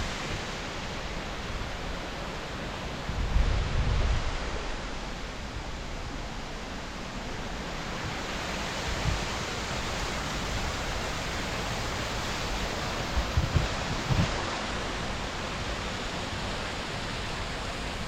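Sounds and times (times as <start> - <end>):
waterfall rushing: 4.1 - 18.0
wind thumps on microphone: 13.0 - 14.8.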